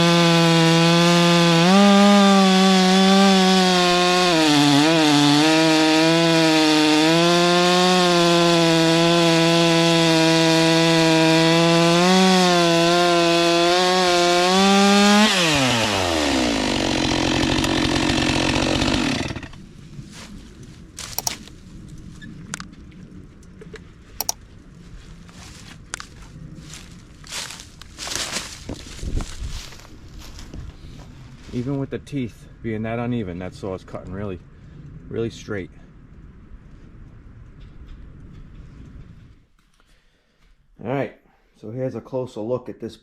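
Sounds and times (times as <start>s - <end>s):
chainsaw cutting log: 0.0s - 19.6s.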